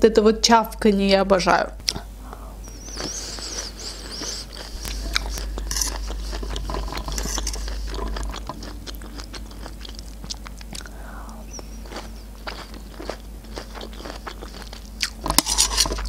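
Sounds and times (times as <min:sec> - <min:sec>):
wet chewing and smacking: 0:01.8 - 0:16.0
fork scraping metal tray: 0:04.6 - 0:10.0, 0:15.2 - 0:16.0.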